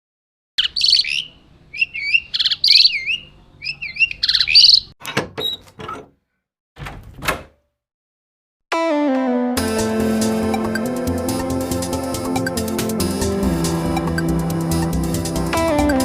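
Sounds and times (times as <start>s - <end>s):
songbird warbling: 0.6s - 4.9s
music: 8.7s - 16.0s.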